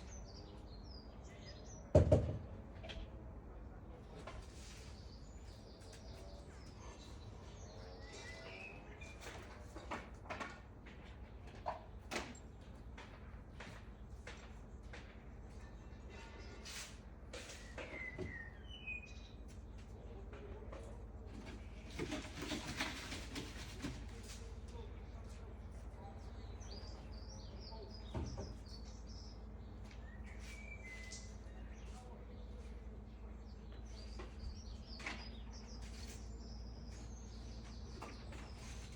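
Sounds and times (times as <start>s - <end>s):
faint bird chirps: 4.7s - 9.2s, 17.5s - 19.4s, 26.0s - 38.9s.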